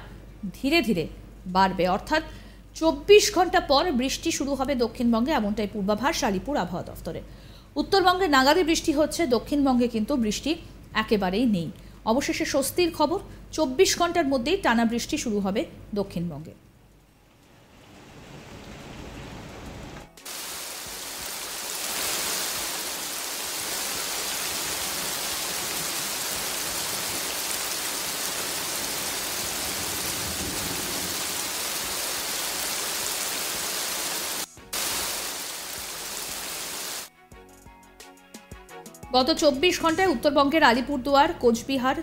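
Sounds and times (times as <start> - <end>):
rain pouring: 16.9 - 37.1.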